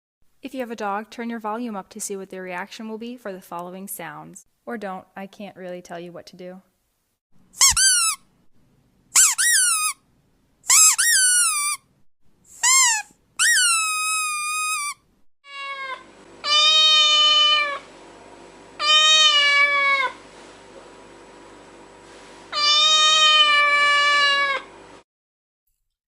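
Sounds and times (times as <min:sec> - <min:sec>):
cat meowing: 0:15.4 - 0:17.8, 0:18.8 - 0:20.2, 0:22.5 - 0:24.7.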